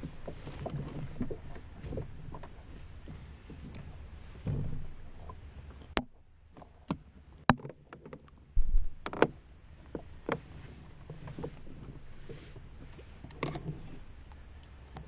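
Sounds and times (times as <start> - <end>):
clicks and knocks on kayak: 0.0 - 14.0
heavy low thump: 4.4 - 5.1, 8.6 - 9.1.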